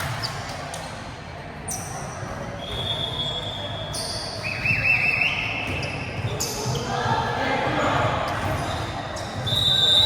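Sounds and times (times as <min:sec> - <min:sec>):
large hall background noise: 0:00.0 - 0:10.0.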